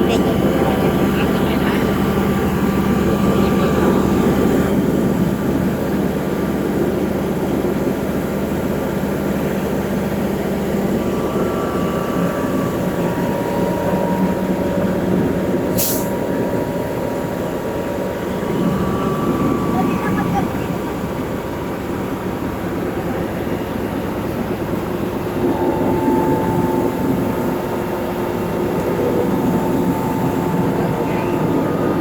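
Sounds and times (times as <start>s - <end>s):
heavy diesel truck engines: 0.0s - 32.0s
short sharp hiss: 15.8s - 16.1s.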